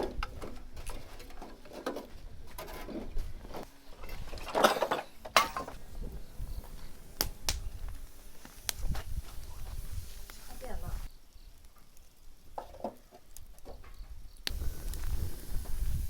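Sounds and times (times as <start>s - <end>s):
wood fire crackling: 4.6s - 16.0s.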